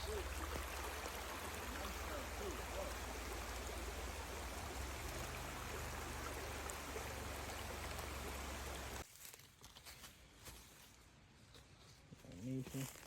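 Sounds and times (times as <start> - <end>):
stream water rushing: 0.0 - 9.0.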